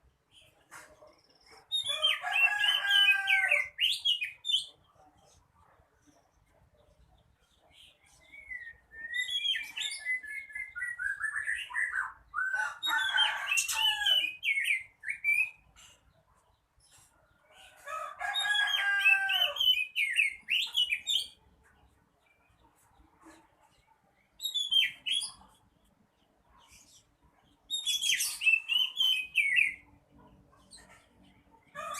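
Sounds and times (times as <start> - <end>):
bird whistling song: 8.2 - 13.2, 14.3 - 15.6, 24.4 - 25.4, 27.7 - 29.8.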